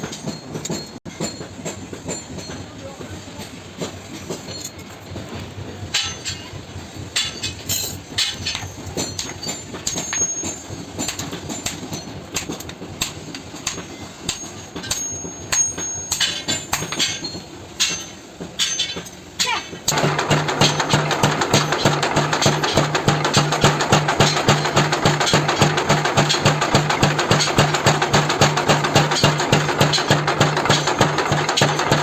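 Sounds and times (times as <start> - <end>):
sharp knocks and clatter: 7.2 - 32.0.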